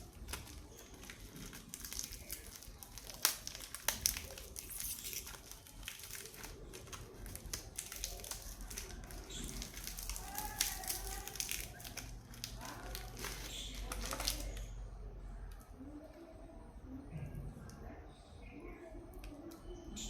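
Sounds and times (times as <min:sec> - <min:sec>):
wrapper crinkling and tearing: 0:00.0 - 0:14.8.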